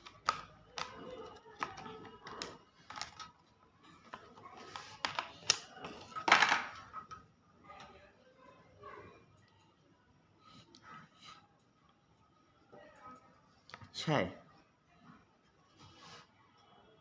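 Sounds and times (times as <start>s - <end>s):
plastic clicks and taps: 0.0s - 3.3s, 4.1s - 5.7s.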